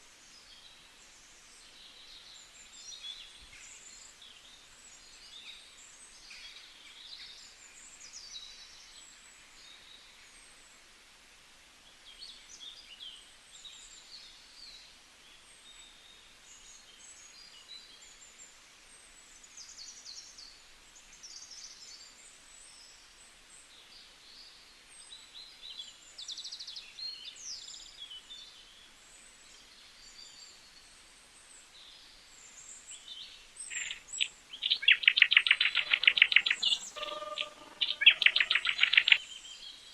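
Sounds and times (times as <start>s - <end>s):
background hiss: 0.0s - 39.9s
rapid trilling bird call: 33.6s - 39.2s
birds chirping: 33.6s - 39.4s.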